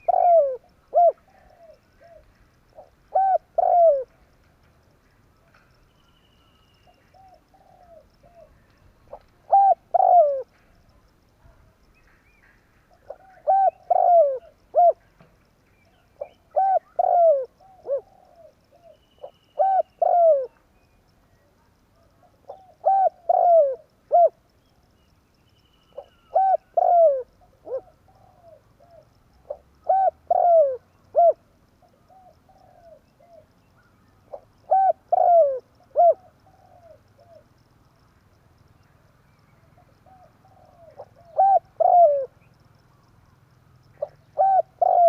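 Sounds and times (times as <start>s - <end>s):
dove cooing: 0.0s - 4.3s, 7.0s - 11.6s, 12.9s - 15.1s, 16.2s - 20.6s, 22.2s - 24.4s, 26.0s - 33.5s, 34.3s - 37.5s, 39.8s - 42.4s, 44.0s - 45.0s
faint high bird chirp: 0.0s - 45.0s.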